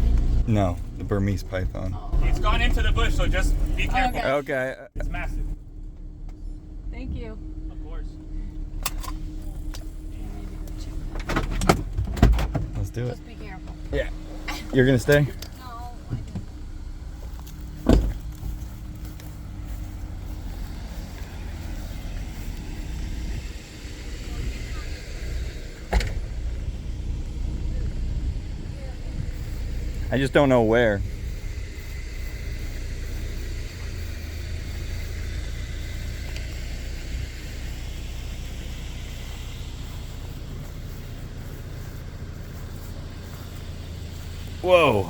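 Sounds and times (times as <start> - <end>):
vehicle engine running: 0.0 - 45.0
sharp thump: 17.8 - 18.3, 25.9 - 26.4.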